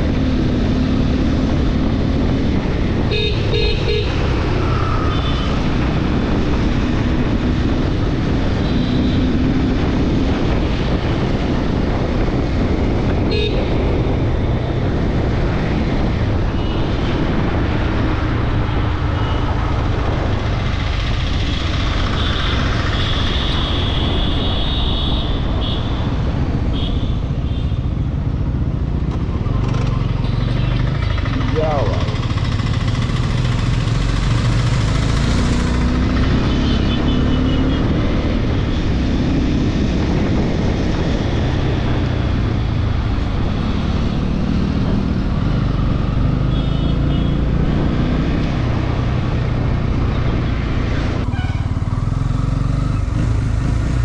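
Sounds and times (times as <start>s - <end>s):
road and wind noise: 0.0s - 54.0s
vehicle horns: 3.1s - 4.2s, 13.2s - 13.8s, 22.1s - 26.1s, 26.7s - 27.9s, 36.3s - 38.0s, 46.4s - 47.5s, 51.2s - 51.8s
motorcycle engine running: 28.2s - 38.1s.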